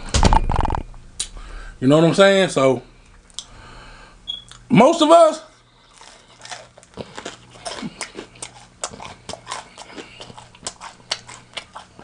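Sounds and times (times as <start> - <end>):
wet chewing mouth clicks: 6.0 - 12.0.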